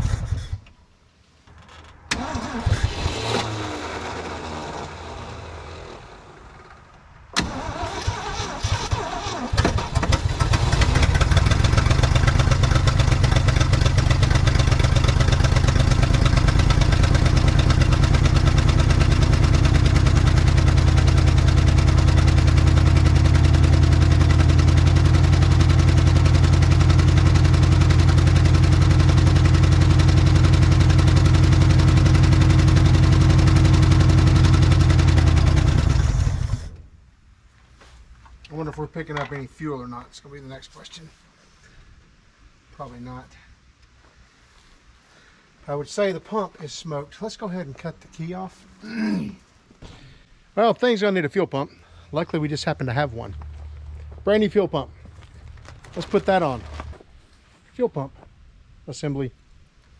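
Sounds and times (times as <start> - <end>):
engine cranking and idling: 1.5 - 37.0, 51.8 - 57.1.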